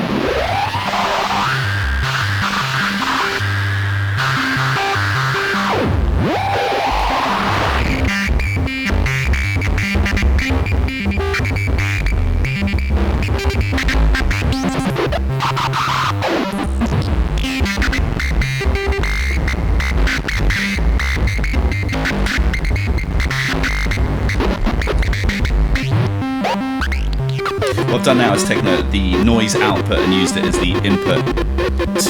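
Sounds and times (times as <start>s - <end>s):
glitchy filtered synth notes: 20.6s - 32.0s.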